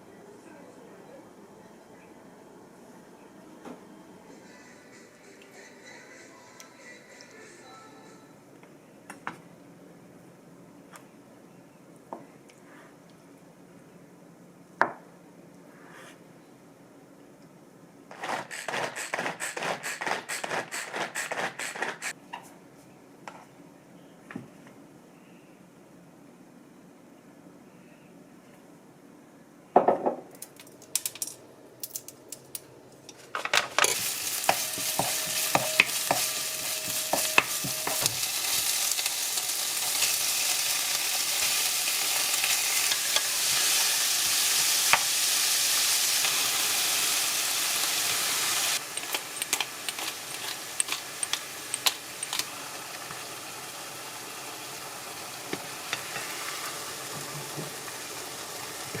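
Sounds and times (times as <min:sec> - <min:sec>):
food sizzling in a pan: 0:33.8 - 0:59.0
utensil tapping a pan: 0:34.4 - 0:38.2.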